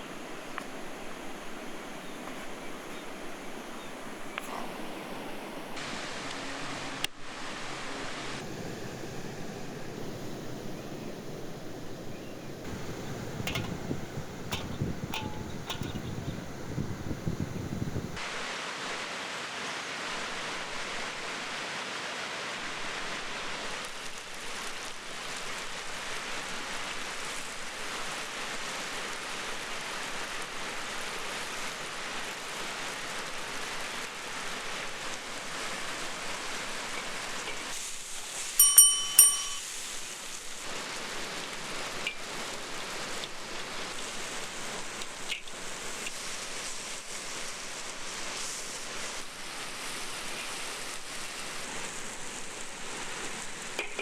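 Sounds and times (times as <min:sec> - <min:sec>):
steady hiss: 0:00.0 - 0:54.0
sharp metal clinks: 0:14.5 - 0:16.2, 0:38.6 - 0:39.9.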